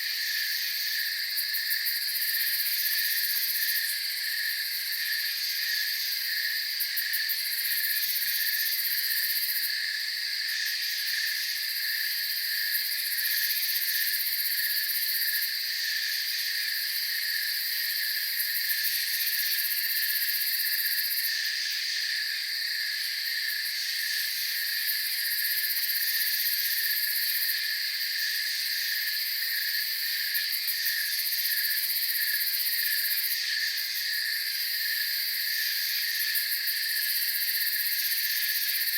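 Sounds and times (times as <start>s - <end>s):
crickets and insects chirping: 0.0s - 38.9s
high-pitched insect whine: 0.1s - 38.9s.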